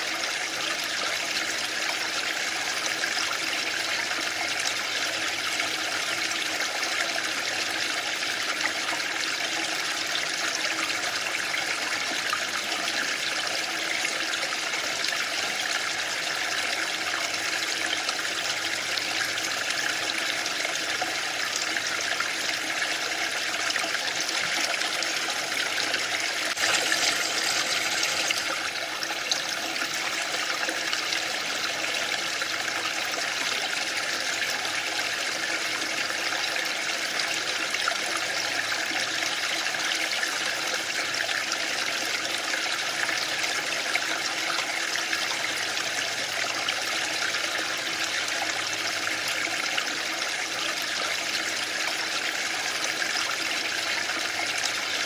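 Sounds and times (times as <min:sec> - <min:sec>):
waterfall rushing and splashing: 0:26.5 - 0:28.4.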